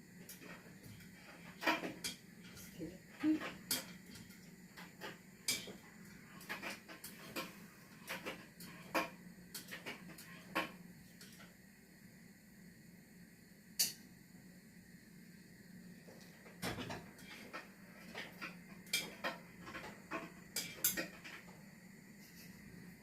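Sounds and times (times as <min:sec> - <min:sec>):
household clatter clicks and knocks: 0:00.3 - 0:11.4, 0:16.5 - 0:21.6.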